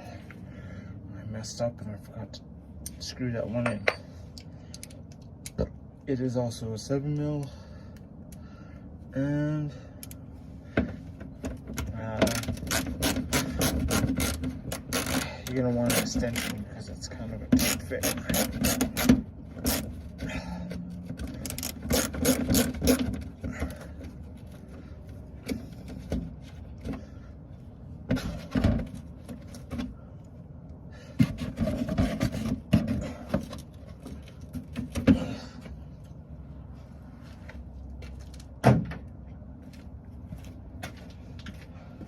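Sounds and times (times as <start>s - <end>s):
ratchet clicking: 17.6s - 19.9s, 21.4s - 23.0s.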